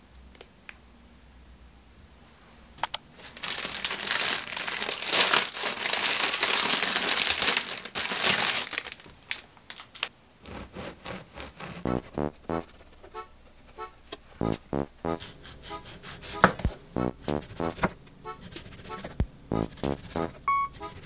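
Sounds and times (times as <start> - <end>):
plastic bag crinkling: 3.2 - 10.1.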